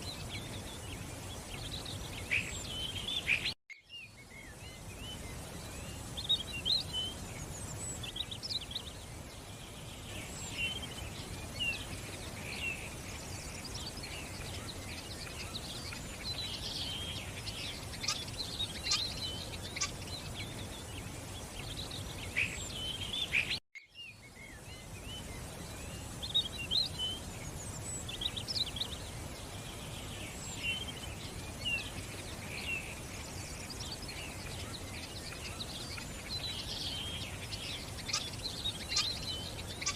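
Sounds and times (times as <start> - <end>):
small birds chirping: 0.0 - 39.9
running water: 4.2 - 23.6.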